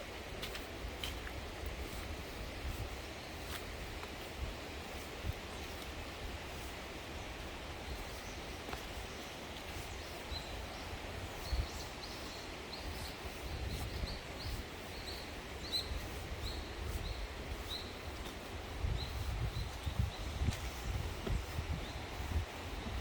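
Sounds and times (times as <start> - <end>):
wind rumble on microphone: 0.0 - 23.0
small bird chirping: 7.9 - 18.0.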